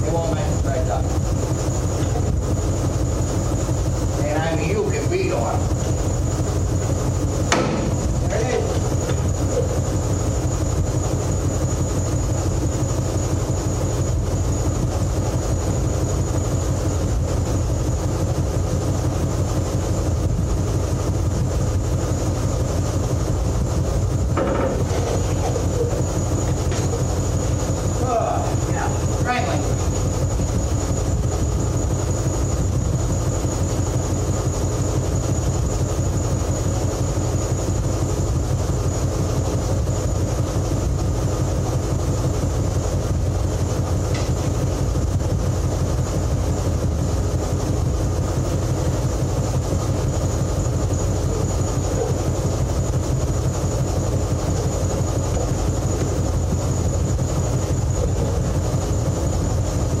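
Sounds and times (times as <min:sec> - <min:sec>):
engine running steadily: 0:00.0 - 1:00.0.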